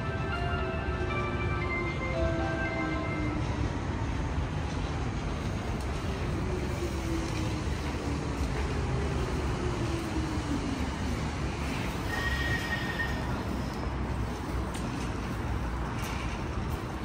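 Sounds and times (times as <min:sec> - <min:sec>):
electric train rumbling: 0:00.0 - 0:17.0
short high squeal: 0:12.1 - 0:13.3.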